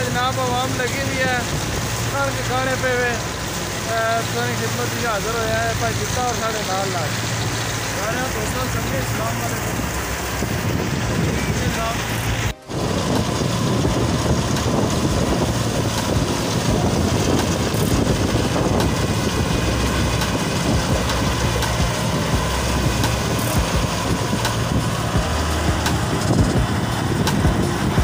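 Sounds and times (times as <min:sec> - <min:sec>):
tractor diesel engine: 0:00.0 - 0:28.0
wheat thresher running: 0:00.0 - 0:28.0.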